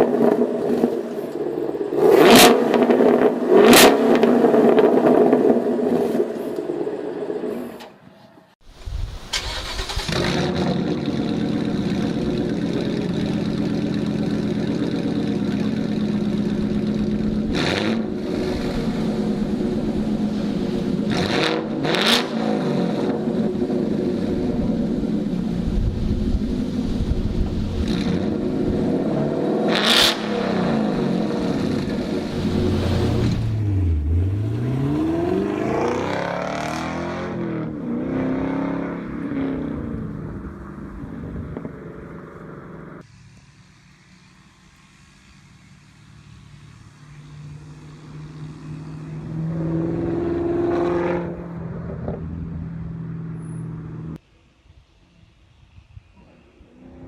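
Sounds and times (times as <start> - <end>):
car engine revving: 0.0 - 7.7, 9.4 - 43.0, 47.7 - 54.2
car passing by: 29.8 - 53.8.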